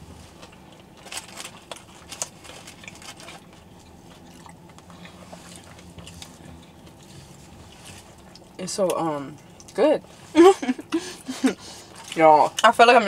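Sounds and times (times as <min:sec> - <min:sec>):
people chewing fried chicken: 0:00.0 - 0:08.6, 0:09.3 - 0:12.6
crisp crackles: 0:00.2 - 0:08.6.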